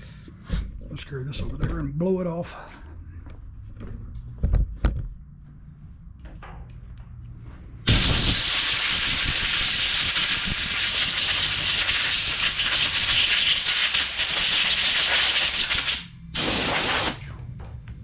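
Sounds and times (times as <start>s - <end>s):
compressed air hissing: 7.9s - 17.3s.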